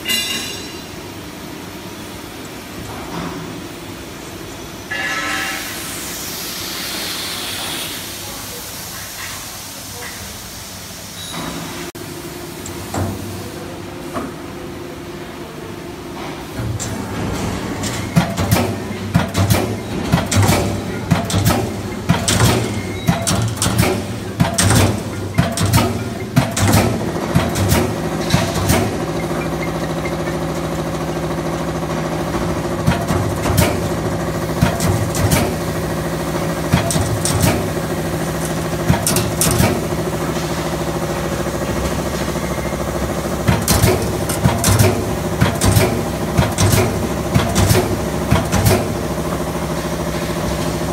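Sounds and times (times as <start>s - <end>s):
hydraulic power unit hum: 0.0s - 50.9s
punch press punching sheet metal: 16.6s - 50.9s.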